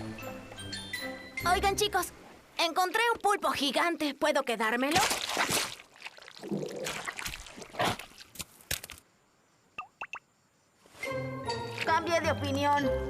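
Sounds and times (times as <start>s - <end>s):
cartoon wet splashing and squelching: 4.8s - 8.5s.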